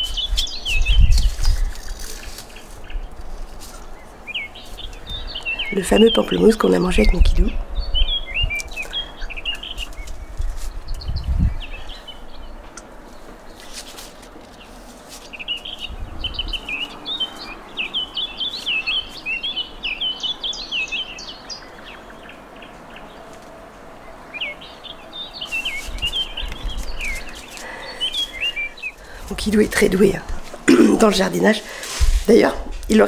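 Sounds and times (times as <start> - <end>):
songbirds chirping and twittering: 0.0 - 33.0
low microphone rumbles: 9.6 - 12.5.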